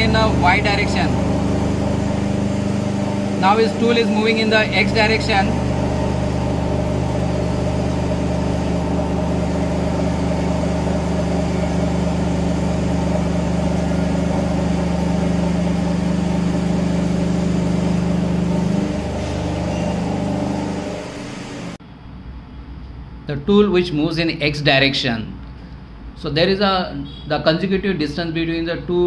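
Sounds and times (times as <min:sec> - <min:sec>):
hiss of cutting and coolant: 0:00.0 - 0:21.8
milling machine spindle running: 0:00.0 - 0:21.8.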